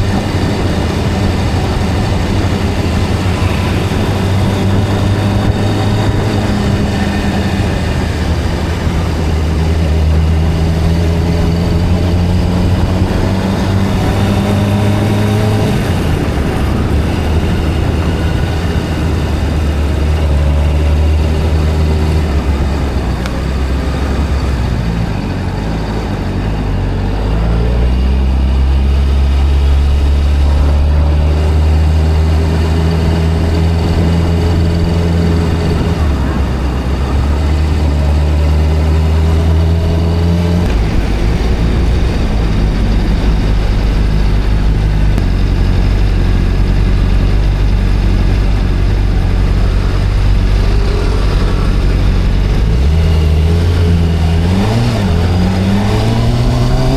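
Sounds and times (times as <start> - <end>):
motorcycle engine running: 0.0 - 56.9
wind and road noise: 0.0 - 56.9.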